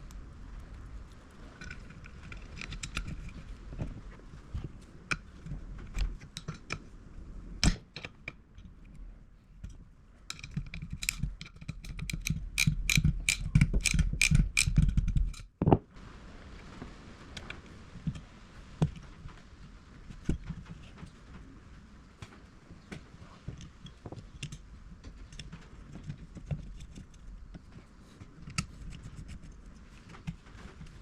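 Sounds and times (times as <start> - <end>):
metallic clicks of hand tools: 9.6 - 15.5.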